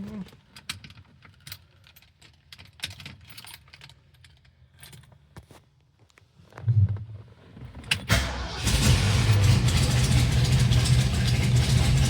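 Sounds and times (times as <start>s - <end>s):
keys jangling and clicking: 0.6s - 5.1s
low rumble: 8.6s - 12.0s.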